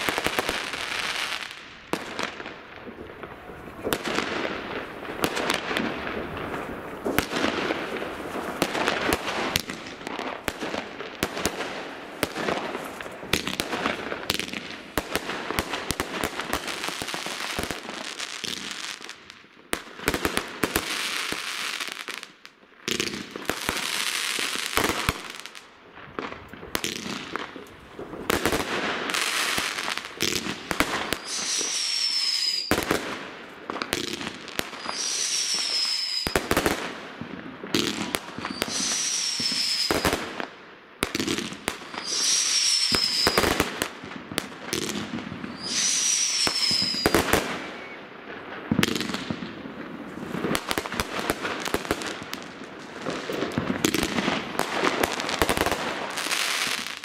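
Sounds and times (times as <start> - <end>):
fireworks bangs and crackling: 0.0 - 57.0
firework whistle falling in pitch: 31.2 - 32.8, 34.8 - 36.4, 38.5 - 40.2, 42.0 - 43.6, 45.5 - 48.1.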